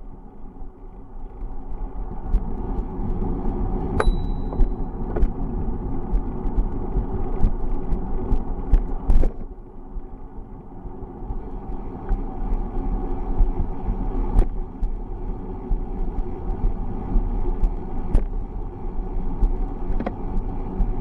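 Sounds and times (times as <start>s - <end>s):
bicycle road noise: 0.0s - 21.0s
wind rumbling on microphone: 0.0s - 21.0s
short high ring: 4.0s - 4.6s.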